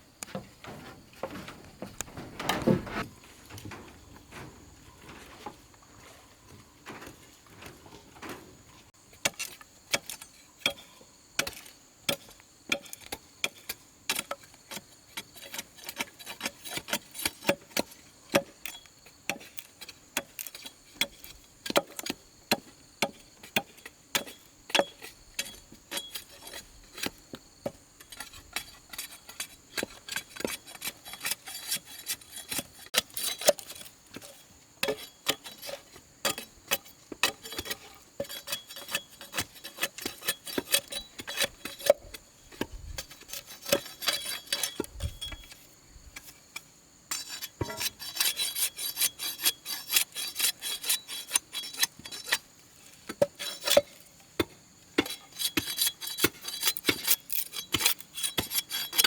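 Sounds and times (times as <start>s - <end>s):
hand tool rasping on bamboo: 28.0s - 35.9s, 37.2s - 42.2s, 43.0s - 45.0s, 47.1s - 52.5s, 55.0s - 59.0s.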